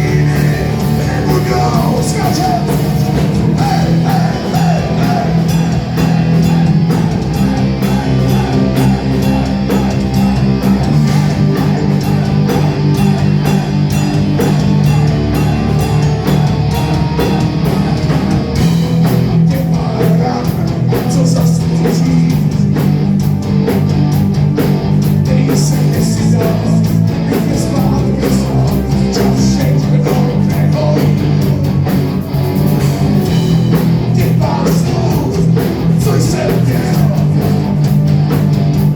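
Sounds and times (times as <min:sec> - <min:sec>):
person singing: 0:00.0 - 0:22.6, 0:34.1 - 0:37.6
bass guitar: 0:00.0 - 0:38.9
drum kit: 0:00.0 - 0:38.9
electric guitar: 0:00.0 - 0:38.9.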